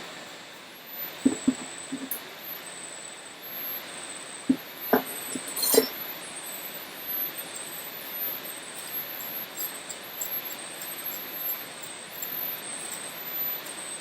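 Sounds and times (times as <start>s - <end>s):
insect trills: 4.5s - 14.0s.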